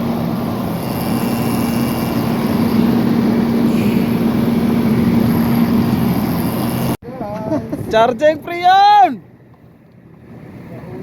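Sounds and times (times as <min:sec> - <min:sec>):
vacuum pump humming: 0:00.0 - 0:07.0.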